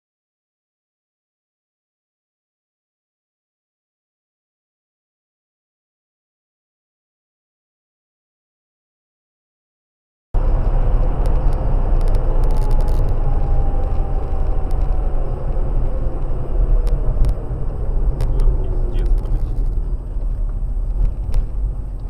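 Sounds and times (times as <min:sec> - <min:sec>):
car engine rumble: 0:10.4 - 0:22.0
road noise: 0:10.4 - 0:22.0.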